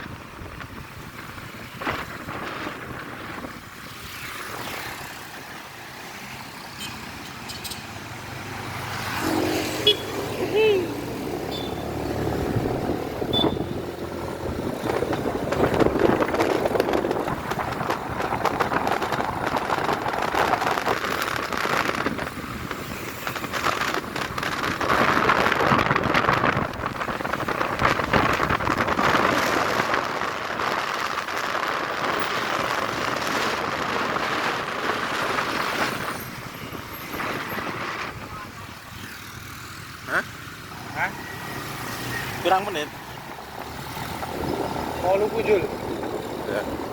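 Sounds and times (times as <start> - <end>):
road noise: 0.0 - 46.9
motorbike engine: 32.3 - 46.9.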